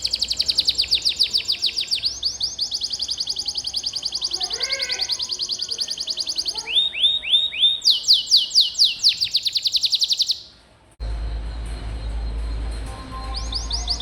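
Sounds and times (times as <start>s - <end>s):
canary singing trills: 0.0s - 10.6s, 13.2s - 14.0s.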